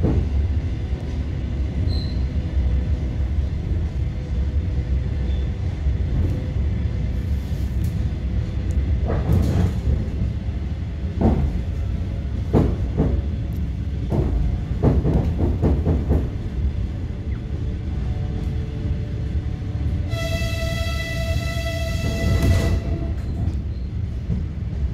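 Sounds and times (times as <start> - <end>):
train running rumble: 0.0 - 24.9.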